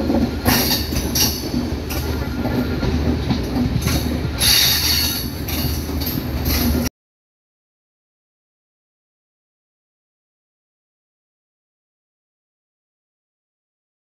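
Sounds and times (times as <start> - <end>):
train wheels rumbling on rails: 0.0 - 6.9.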